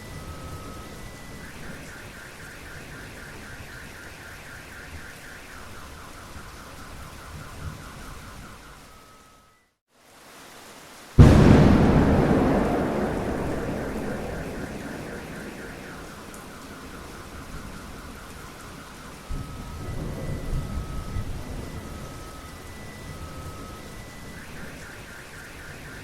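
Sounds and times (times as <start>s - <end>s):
rain: 0.0s - 26.0s
thunder rolling: 11.2s - 18.2s
low thunder rumble: 11.2s - 18.3s.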